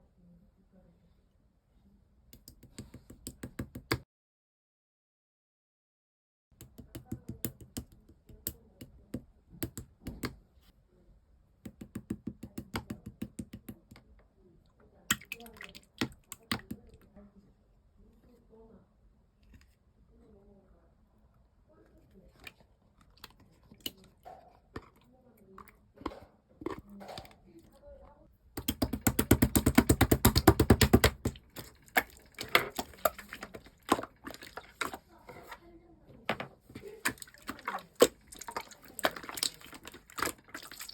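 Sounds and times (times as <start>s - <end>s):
slime clicking and popping: 28.6s - 35.0s.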